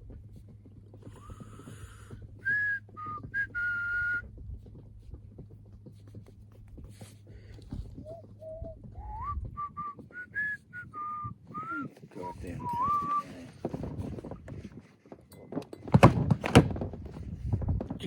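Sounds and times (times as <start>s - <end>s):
person whistling: 2.4s - 4.2s, 8.0s - 13.3s.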